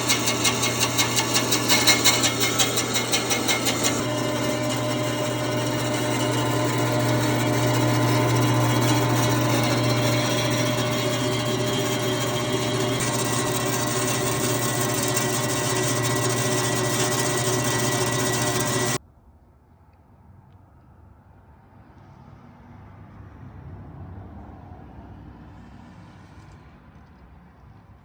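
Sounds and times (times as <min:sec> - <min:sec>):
bandsaw running with low hum: 0:00.0 - 0:19.0.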